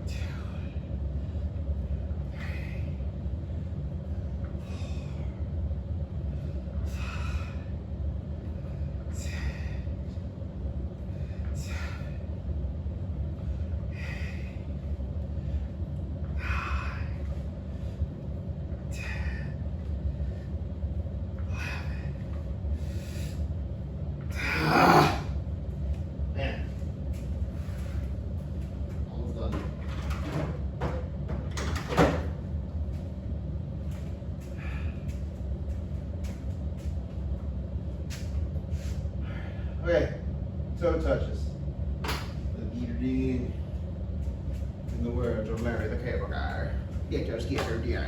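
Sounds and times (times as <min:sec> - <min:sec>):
man breathing hard: 0:00.0 - 0:05.6, 0:06.2 - 0:10.2, 0:11.0 - 0:12.4, 0:13.4 - 0:20.8, 0:21.4 - 0:23.6, 0:34.4 - 0:35.9, 0:38.7 - 0:39.8
steady low hum: 0:00.0 - 0:48.0.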